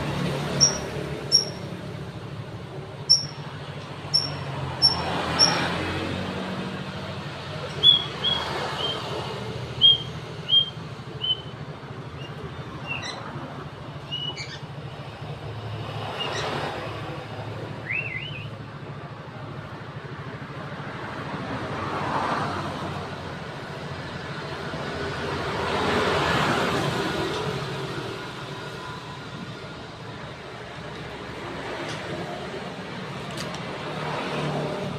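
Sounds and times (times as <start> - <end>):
vehicles passing: 0.0 - 34.9
bird chirping: 0.5 - 1.7, 3.0 - 3.5, 4.1 - 5.7, 7.8 - 9.1, 9.8 - 11.6, 12.2 - 13.3, 14.1 - 14.7, 17.8 - 18.5.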